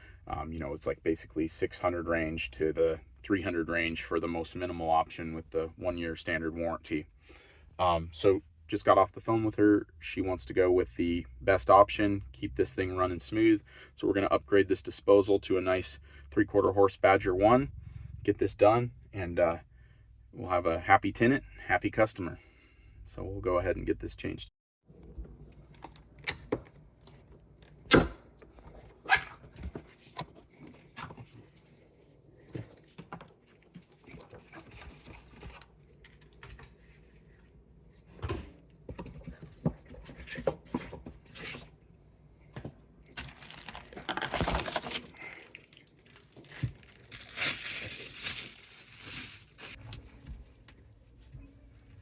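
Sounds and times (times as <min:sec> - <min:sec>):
tearing rustling noise: 0:43.2 - 0:49.8.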